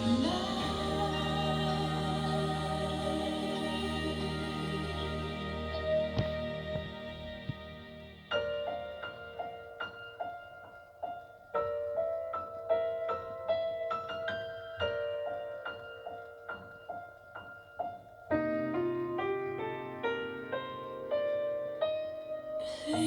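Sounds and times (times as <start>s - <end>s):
pop ballad sustained notes: 0.0s - 8.3s
slow solo piano chords: 0.0s - 23.0s.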